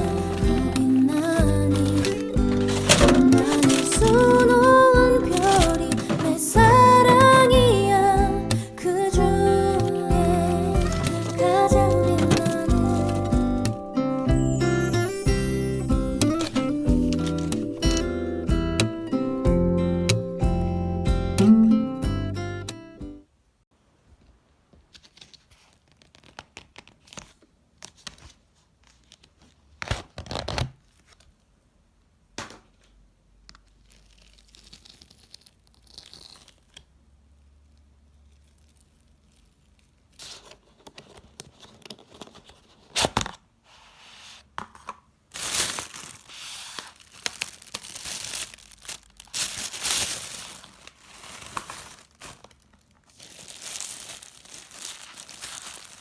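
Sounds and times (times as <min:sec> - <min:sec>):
packaging tearing and crinkling: 0:00.0 - 0:07.9, 0:09.8 - 0:13.8, 0:16.2 - 0:18.0, 0:28.9 - 0:31.3, 0:33.6 - 0:36.9, 0:38.1 - 0:43.4, 0:45.3 - 0:56.0.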